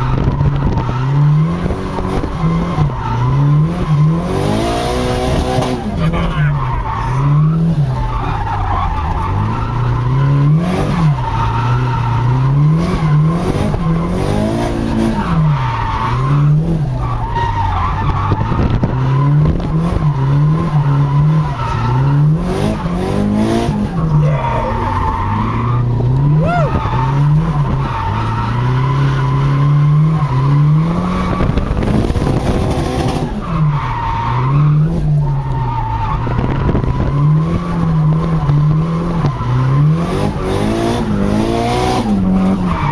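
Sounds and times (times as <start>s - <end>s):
car engine revving: 0.0s - 42.9s
tyres squealing: 23.7s - 29.0s.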